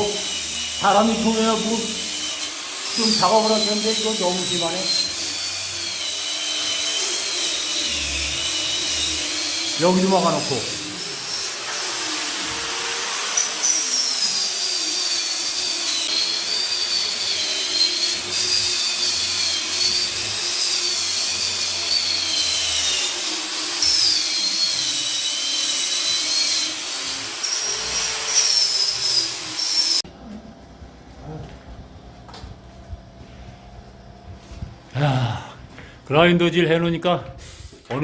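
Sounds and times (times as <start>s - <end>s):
electric grinder whining on plaster: 0.0s - 30.0s.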